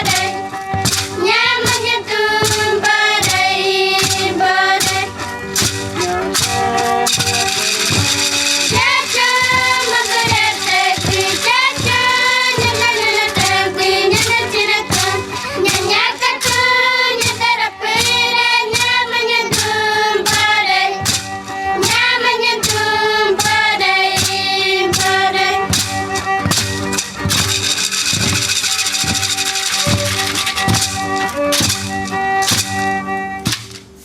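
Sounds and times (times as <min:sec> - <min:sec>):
rattle shaking: 0:00.0 - 0:19.0, 0:24.2 - 0:32.8
high voices singing together: 0:00.0 - 0:25.9
beat of short strokes: 0:00.0 - 0:34.0.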